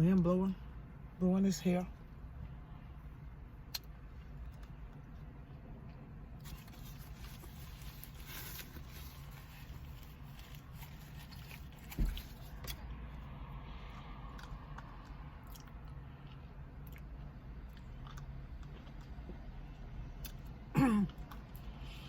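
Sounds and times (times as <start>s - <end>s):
chewing: 6.4s - 12.8s, 17.7s - 19.2s
short thump: 11.8s - 12.4s.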